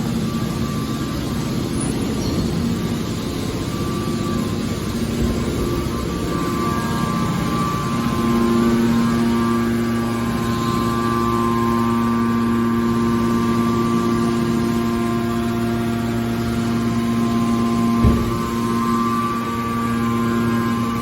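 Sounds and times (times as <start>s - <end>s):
baler machine hum: 0.0s - 21.0s
low thump: 18.0s - 18.6s.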